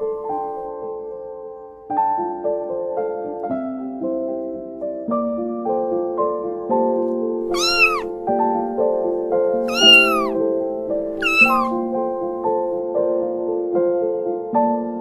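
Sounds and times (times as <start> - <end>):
soft piano music: 0.0 - 15.0
kitten meowing: 7.5 - 8.2, 9.7 - 10.4, 11.1 - 11.8.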